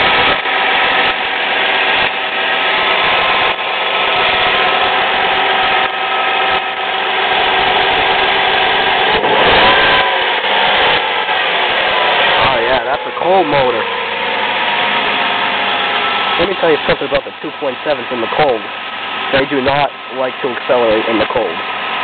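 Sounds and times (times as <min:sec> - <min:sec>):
car engine idling: 0:00.0 - 0:22.0
person talking: 0:12.4 - 0:13.9, 0:16.4 - 0:18.7, 0:19.3 - 0:21.6.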